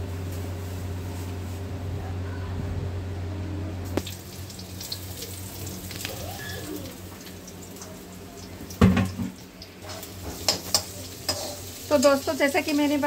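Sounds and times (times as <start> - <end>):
onions sizzling in oil: 3.9 - 13.0
utensil knock: 8.8 - 9.4.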